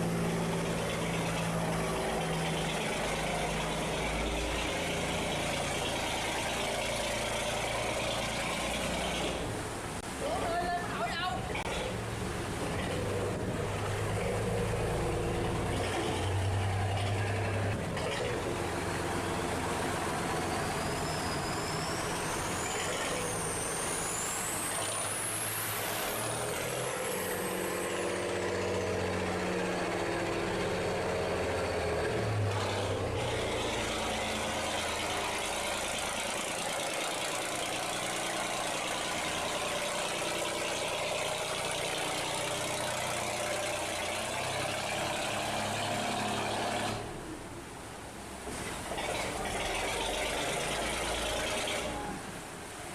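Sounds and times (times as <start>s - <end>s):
heavy engines running: 0.0s - 10.6s, 11.4s - 52.9s
high whistle gliding up and down: 20.3s - 28.0s.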